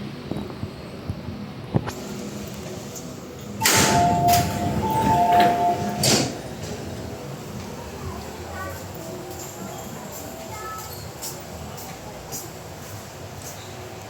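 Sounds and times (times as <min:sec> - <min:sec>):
sliding doors closing: 0:01.9 - 0:08.5
two-tone warning beeps: 0:03.6 - 0:06.2
door thud: 0:03.6 - 0:06.4.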